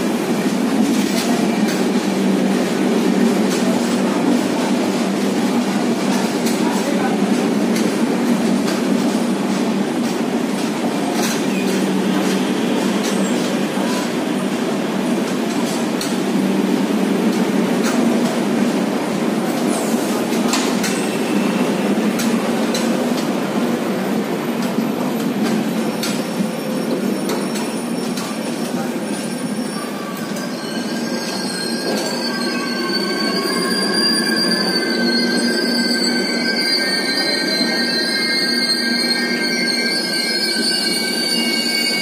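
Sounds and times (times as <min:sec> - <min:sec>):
train wheels rumbling on rails: 0:00.0 - 0:42.0
faint high wheel squeal: 0:26.6 - 0:42.0.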